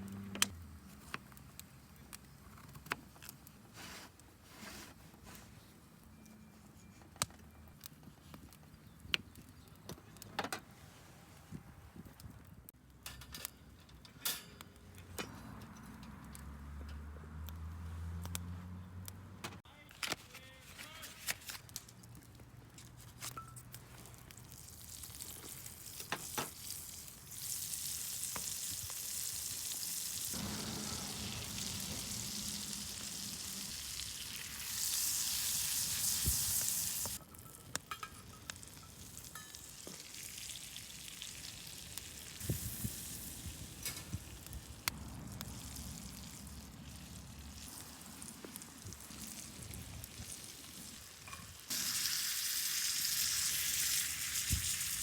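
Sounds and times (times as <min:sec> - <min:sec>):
food sizzling in a pan: 0:24.6 - 0:37.2, 0:38.6 - 0:44.7, 0:45.5 - 0:55.0.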